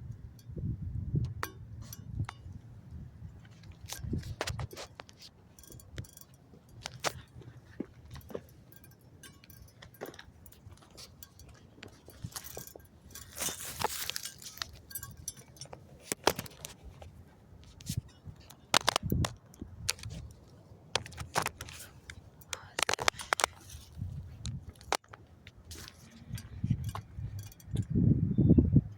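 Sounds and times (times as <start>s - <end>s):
scraping rustle: 10.0s - 24.9s.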